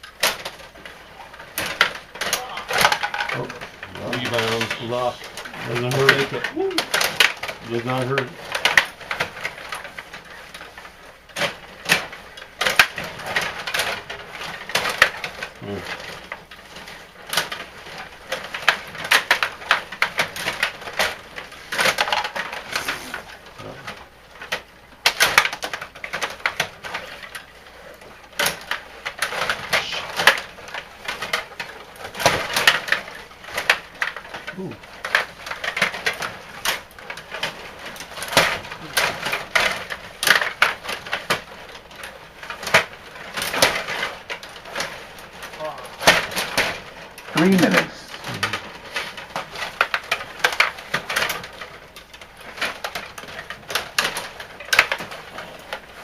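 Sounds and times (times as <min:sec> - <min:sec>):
hockey sticks clacking on puck: 0:00.0 - 0:56.0
skate blades scraping ice: 0:22.7 - 0:23.3.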